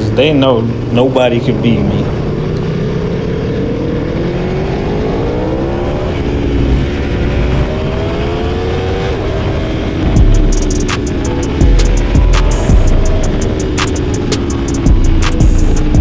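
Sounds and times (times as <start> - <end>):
wind rush: 0.0 - 11.4
motorcycle engine accelerating: 0.0 - 16.0
deep low rumble: 5.6 - 8.4, 10.0 - 13.6.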